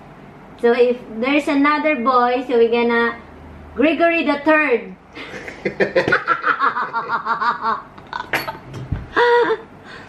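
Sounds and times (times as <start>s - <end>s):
person laughing: 5.2s - 8.4s, 9.1s - 9.7s.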